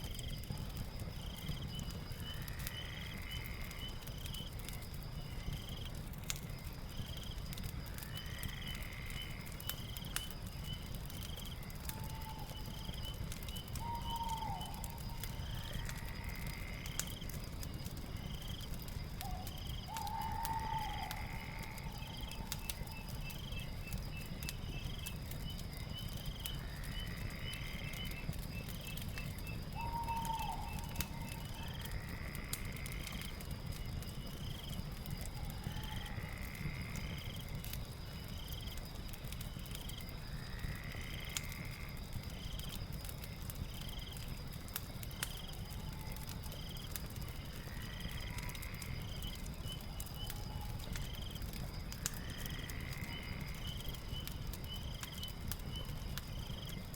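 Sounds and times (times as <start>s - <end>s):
fire crackling and popping: 0.0s - 56.9s
high insect drone: 47.4s - 50.0s
frog calling: 47.5s - 49.0s.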